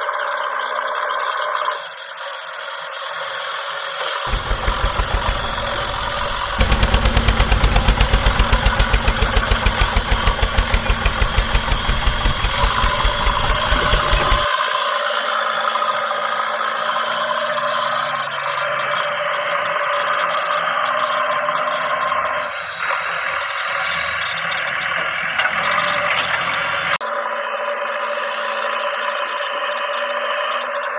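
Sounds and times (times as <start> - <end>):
tractor engine chugging: 4.3 - 14.5.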